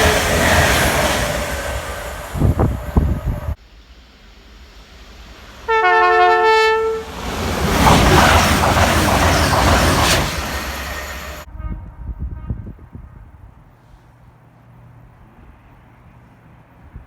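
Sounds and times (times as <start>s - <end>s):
train passing with rushing rumble: 0.0s - 17.0s
two-note train horn: 5.6s - 7.1s, 11.5s - 13.3s.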